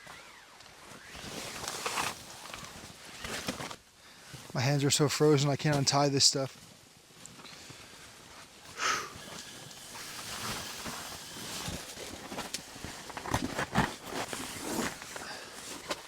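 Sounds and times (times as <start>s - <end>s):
fabric and cord rustling: 8.1s - 16.0s.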